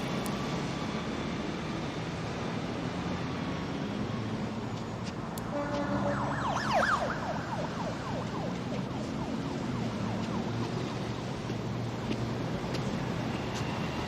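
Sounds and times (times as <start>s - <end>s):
low traffic rumble: 0.0s - 14.0s
siren sweeping up and down: 3.9s - 11.3s.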